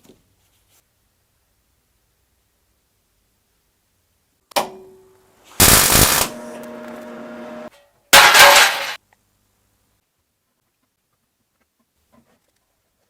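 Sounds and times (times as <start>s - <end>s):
steady hum: 5.6s - 7.7s
welding crackle: 5.6s - 9.0s.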